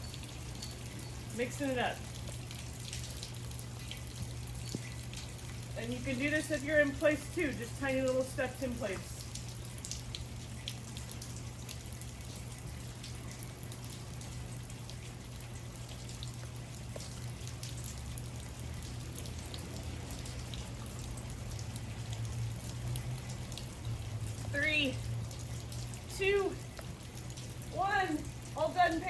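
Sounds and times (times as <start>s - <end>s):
light ticks and taps: 2.2s - 5.6s.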